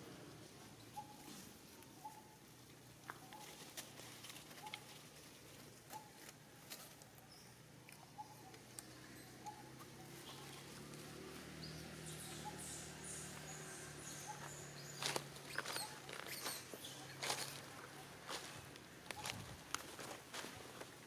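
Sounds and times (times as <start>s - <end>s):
faint clicks and rustles: 2.6s - 8.9s.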